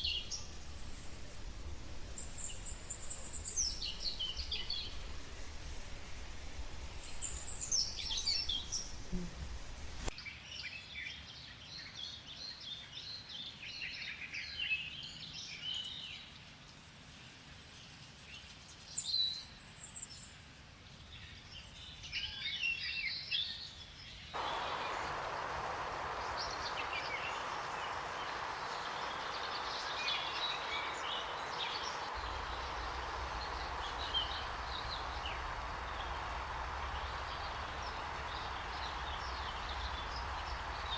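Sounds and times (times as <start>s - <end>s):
steady hiss: 0.0s - 10.2s, 24.4s - 40.9s
birds calling and chirping: 24.4s - 40.9s.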